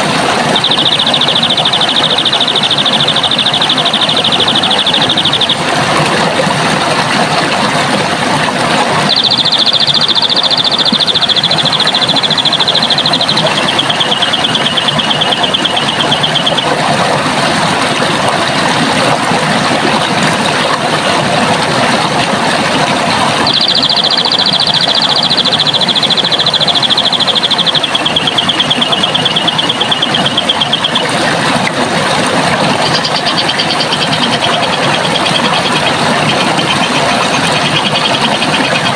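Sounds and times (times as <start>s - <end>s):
running water: 0.0s - 38.9s
songbird rapid high trill: 0.2s - 5.9s, 9.0s - 17.0s, 23.2s - 31.2s, 32.6s - 38.9s.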